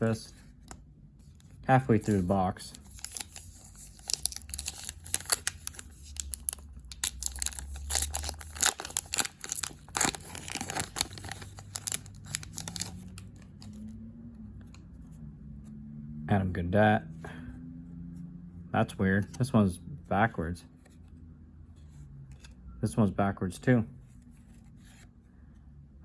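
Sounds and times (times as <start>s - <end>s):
foil wrapper tearing and crinkling: 1.9s - 13.4s.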